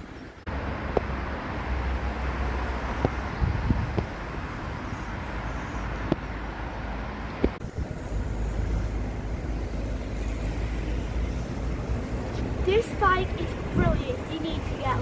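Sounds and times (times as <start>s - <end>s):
wind buffeting microphone: 3.0s - 4.8s, 7.3s - 8.4s, 9.2s - 15.0s.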